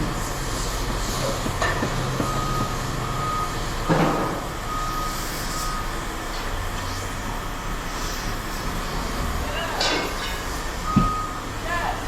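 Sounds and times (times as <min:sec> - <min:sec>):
reversing alarm beeping: 0:00.0 - 0:06.2, 0:10.7 - 0:12.0
heavy vehicle engine rumbling: 0:00.0 - 0:12.0.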